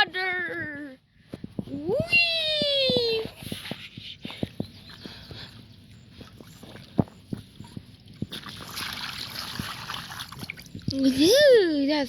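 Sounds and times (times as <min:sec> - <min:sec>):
water sloshing and splashing: 0:04.4 - 0:11.4.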